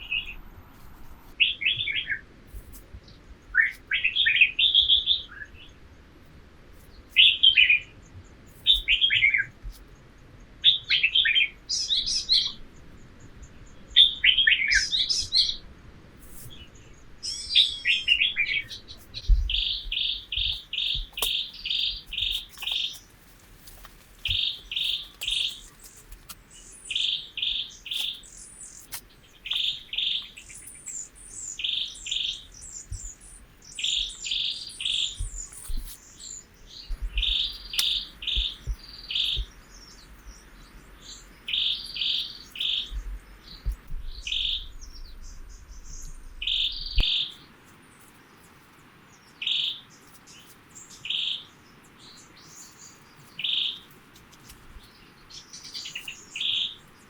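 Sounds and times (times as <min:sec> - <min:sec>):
low rumble: 0:00.0 - 0:01.4, 0:43.0 - 0:47.0
birds calling and twittering: 0:00.0 - 0:02.2, 0:06.8 - 0:15.6, 0:16.3 - 0:57.0.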